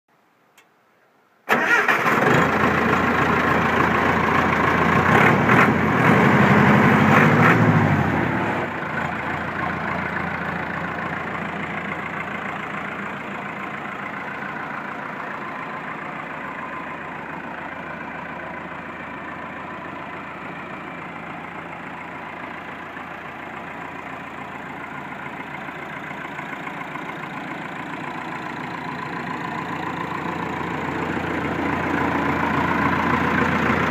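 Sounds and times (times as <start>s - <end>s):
diesel engine starting and idling: 1.5s - 33.9s.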